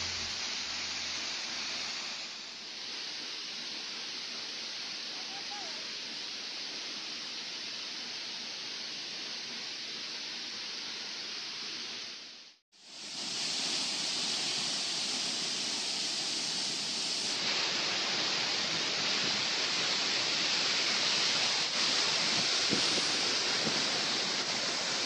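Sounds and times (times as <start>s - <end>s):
waterfall rushing: 0.0s - 6.7s, 12.9s - 25.0s.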